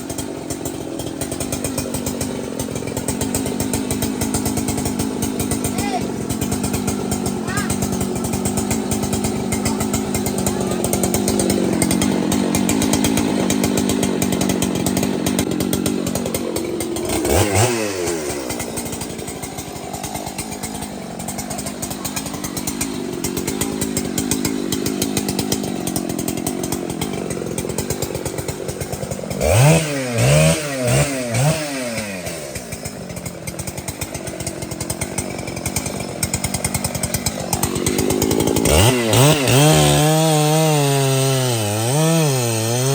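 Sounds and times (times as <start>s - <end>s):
chainsaw cutting timber: 0.0s - 42.9s.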